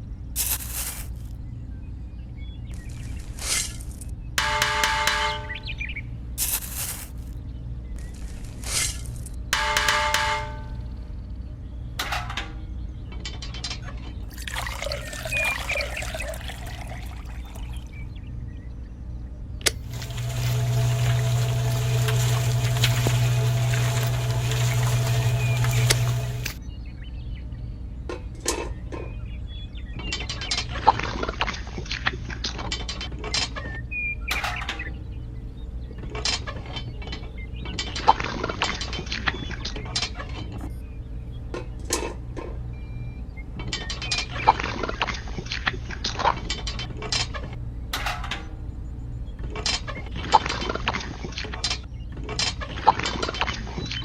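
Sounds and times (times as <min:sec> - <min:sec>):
steady low hum: 0:14.0 - 0:30.0, 0:33.7 - 0:51.3
liquid pouring and trickling: 0:14.3 - 0:18.0, 0:19.8 - 0:26.6
small motor humming: 0:19.7 - 0:26.6.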